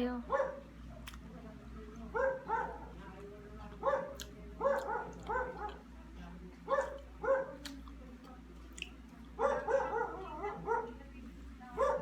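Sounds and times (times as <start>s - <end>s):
dog barking: 0.3s - 0.6s, 2.1s - 3.0s, 3.8s - 5.8s, 6.7s - 7.6s, 9.4s - 11.0s, 11.8s - 12.0s.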